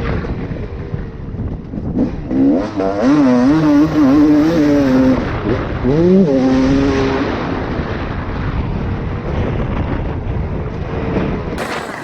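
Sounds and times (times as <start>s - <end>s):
wind rumble on microphone: 0.0s - 12.0s
dirt bike engine revving: 2.0s - 7.2s, 11.6s - 12.0s.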